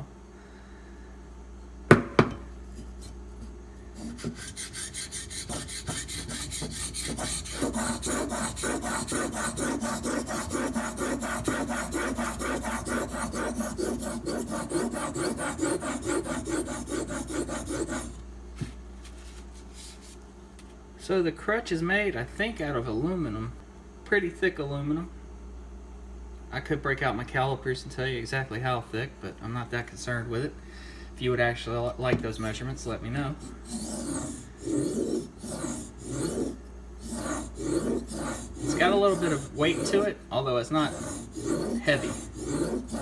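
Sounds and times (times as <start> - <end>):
knife scraping on sharpening stone: 4.0 - 18.2, 33.4 - 40.1, 40.7 - 43.0.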